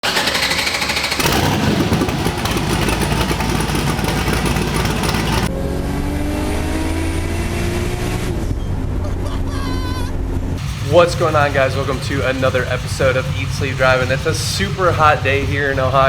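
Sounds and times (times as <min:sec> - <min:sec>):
car engine running rough: 0:00.0 - 0:09.0, 0:10.2 - 0:16.0
car engine accelerating: 0:00.0 - 0:09.4, 0:10.1 - 0:16.0.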